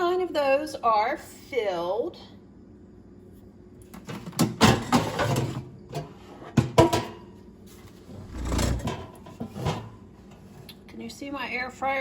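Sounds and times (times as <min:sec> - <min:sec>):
air fryer basket clattering: 0:04.0 - 0:07.4, 0:08.1 - 0:10.5
basket sliding rumble: 0:07.6 - 0:10.6.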